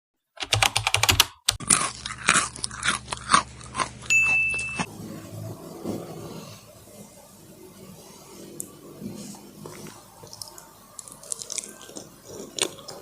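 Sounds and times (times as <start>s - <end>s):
crunchy bites and chewing: 1.5s - 4.9s, 9.6s - 13.0s
high-pitched tone: 4.1s - 4.9s.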